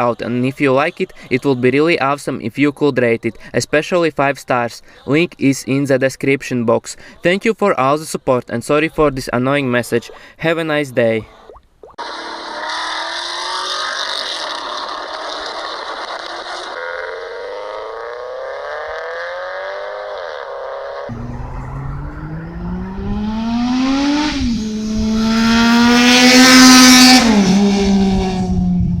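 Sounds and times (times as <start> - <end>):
engine exhaust revving: 21.1 - 29.0.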